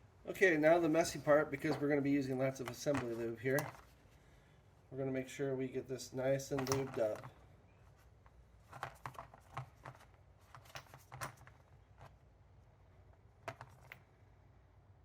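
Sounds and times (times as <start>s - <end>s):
small metal parts and tools clicking: 6.4s - 7.4s.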